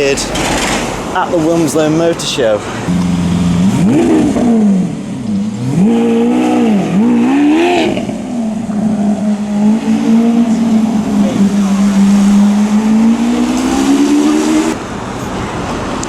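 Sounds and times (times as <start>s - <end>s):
car engine idling: 0.0s - 15.7s
sports car engine revving: 2.7s - 14.8s.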